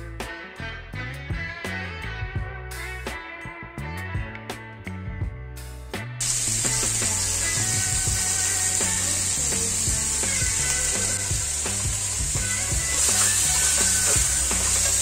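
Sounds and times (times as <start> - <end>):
background music with bass: 0.0 - 15.0
crabs sizzling in hot oil: 6.2 - 15.0
wooden spatula scraping wok: 11.5 - 15.0.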